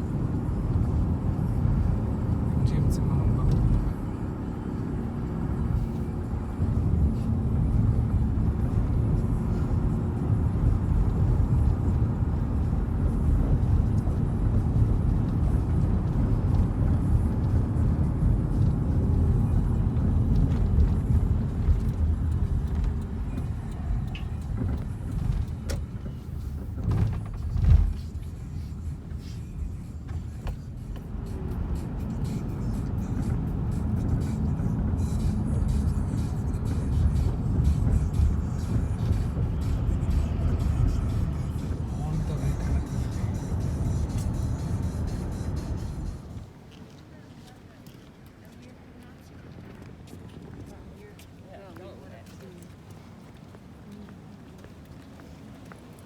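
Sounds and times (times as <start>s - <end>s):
road and engine rumble: 0.0s - 56.0s
car bump: 24.1s - 28.6s.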